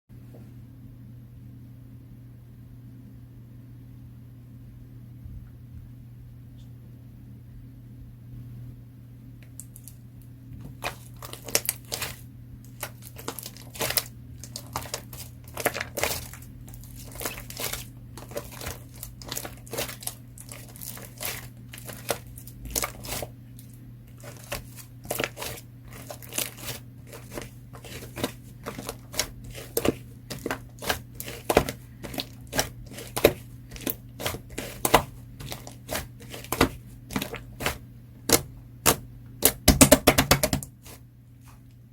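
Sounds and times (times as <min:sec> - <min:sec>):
slime squished by hand: 0:10.7 - 0:41.7.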